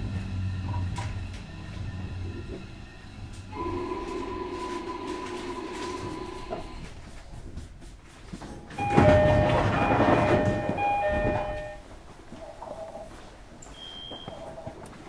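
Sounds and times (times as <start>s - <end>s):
electric train running noise: 0.0s - 6.9s, 8.8s - 11.8s
level-crossing alarm ringing: 3.5s - 6.9s, 8.8s - 12.0s.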